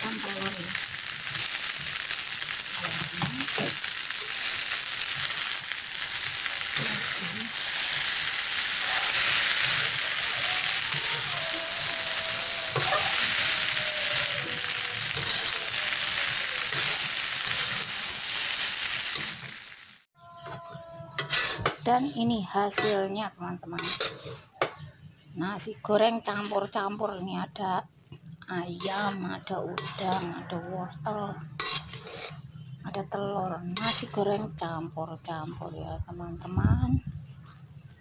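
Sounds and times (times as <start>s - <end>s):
fried rice sizzling in a wok: 0.0s - 23.2s, 23.8s - 27.4s, 28.0s - 35.0s
metal spatula scraping a pan: 0.2s - 19.5s, 20.4s - 24.9s, 26.2s - 27.2s, 28.6s - 32.7s, 33.4s - 34.5s.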